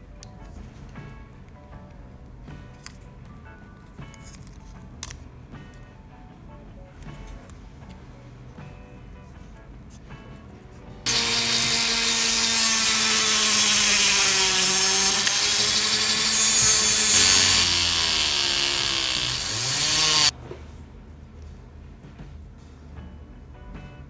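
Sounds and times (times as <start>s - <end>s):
small electric motor whining: 11.1s - 20.3s.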